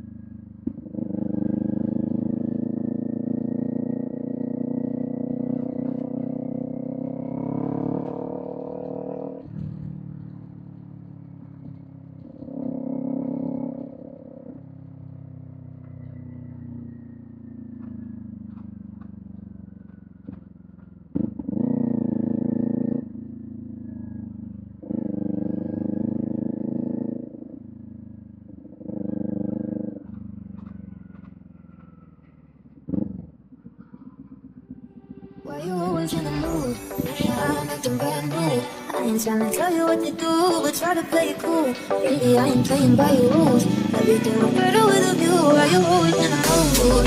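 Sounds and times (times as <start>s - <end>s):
motorcycle engine revving: 0.0s - 47.0s.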